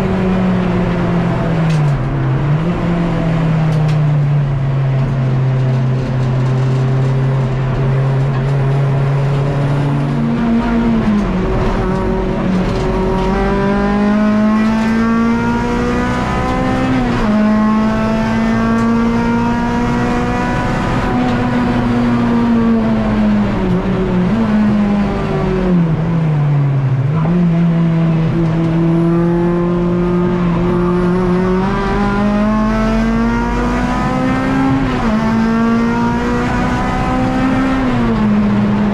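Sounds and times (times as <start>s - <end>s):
race car engine at high revs: 0.0s - 38.9s.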